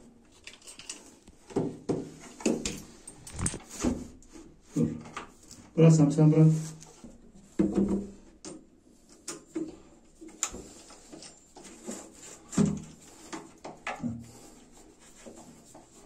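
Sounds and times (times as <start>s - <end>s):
rubbing against wall: 10.6s - 16.0s.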